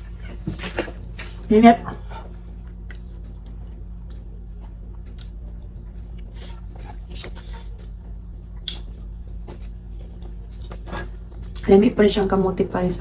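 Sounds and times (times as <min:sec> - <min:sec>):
low hum: 0:00.0 - 0:13.0
chewing and mouth smacks: 0:02.2 - 0:11.7.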